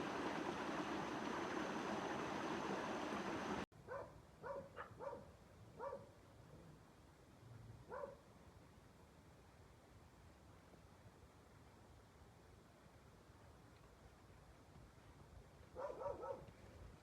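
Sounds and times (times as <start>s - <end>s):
flowing water rushing: 0.0s - 3.7s
dog yelping: 15.8s - 16.4s.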